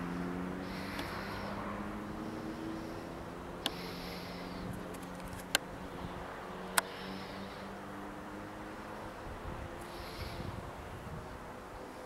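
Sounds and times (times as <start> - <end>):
distant high-speed train rushing: 0.0 - 12.0.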